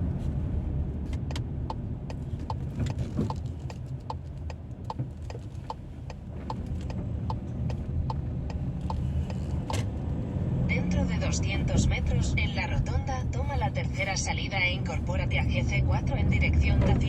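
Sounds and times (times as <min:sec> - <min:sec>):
engine and tyre rumble: 0:00.0 - 0:17.0
turn signal ticking: 0:01.1 - 0:17.0.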